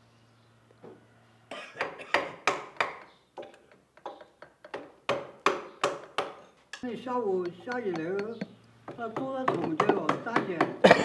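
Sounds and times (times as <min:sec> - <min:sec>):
mallet tapping chisel: 0:04.1 - 0:10.9.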